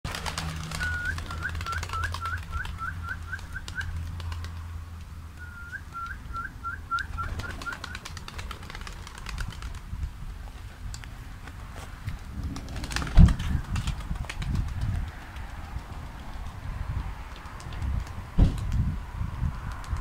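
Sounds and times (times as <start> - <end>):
bird whistled song: 0.7 - 3.9, 5.4 - 8.0.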